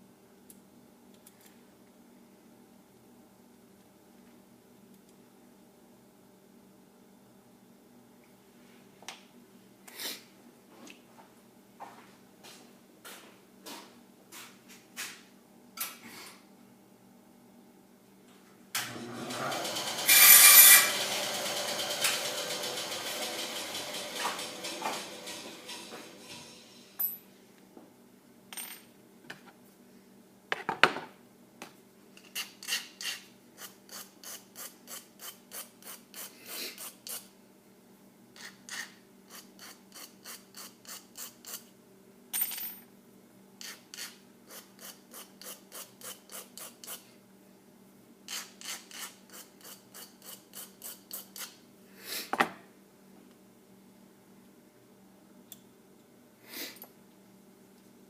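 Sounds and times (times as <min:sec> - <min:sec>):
file scraping metal: 0:19.3 - 0:21.2, 0:38.4 - 0:41.7, 0:48.3 - 0:51.5.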